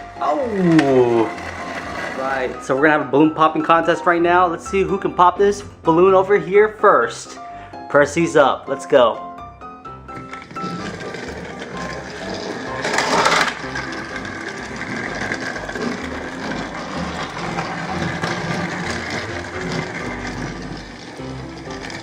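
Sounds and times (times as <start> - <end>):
scraping noise: 0.5 - 2.9, 10.0 - 22.0
toy train motor whir: 10.1 - 22.0.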